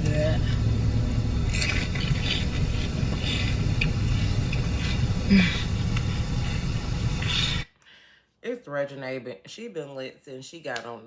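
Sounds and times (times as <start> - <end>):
car cabin rumble: 0.0 - 7.4.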